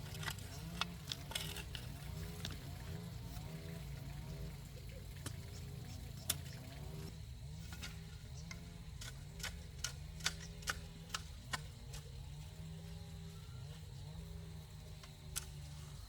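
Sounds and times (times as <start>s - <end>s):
steady low hum: 0.0s - 16.0s
sharp irregular clicks: 7.7s - 12.1s, 15.0s - 15.6s.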